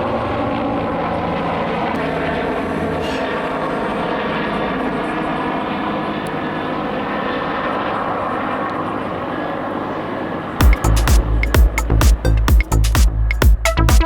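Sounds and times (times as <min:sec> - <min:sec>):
helicopters flying past: 0:00.0 - 0:13.4.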